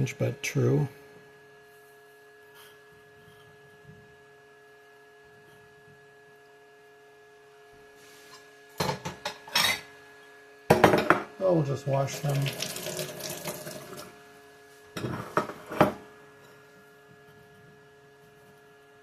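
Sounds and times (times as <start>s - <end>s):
faint electrical hum: 0.0s - 19.0s
water splashing in sink: 12.1s - 14.1s.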